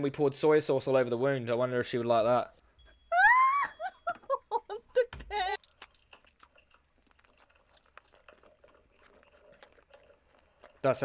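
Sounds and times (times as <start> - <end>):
high-pitched whimper: 3.1 - 5.6
wet squelching chewing: 5.4 - 11.0.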